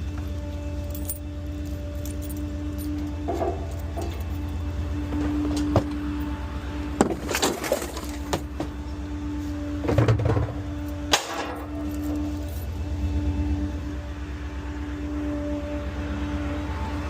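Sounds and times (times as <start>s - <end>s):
garbage truck idling: 0.0s - 17.0s
bottles and cans crashing: 7.0s - 8.4s.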